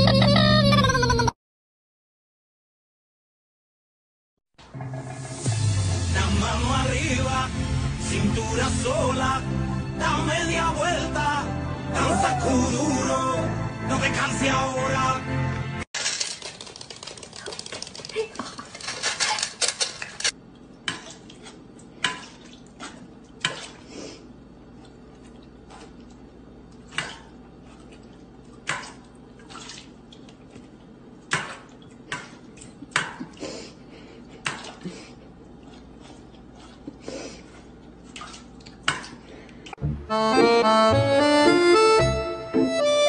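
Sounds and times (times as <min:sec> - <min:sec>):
dog crunching kibble: 0:16.0 - 0:20.3.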